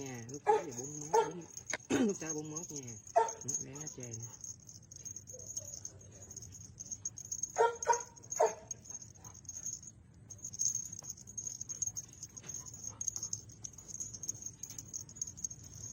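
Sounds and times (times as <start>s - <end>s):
light tapping and patter: 0.0s - 15.9s
dog whining yelps: 7.6s - 8.7s.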